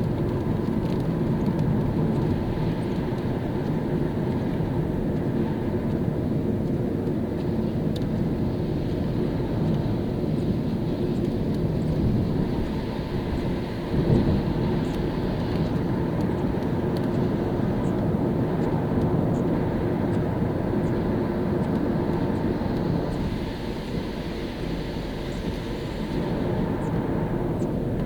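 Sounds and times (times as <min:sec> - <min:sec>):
car engine and tyre rumble: 0:00.0 - 0:28.0
hiss of wet tarmac: 0:22.0 - 0:28.0.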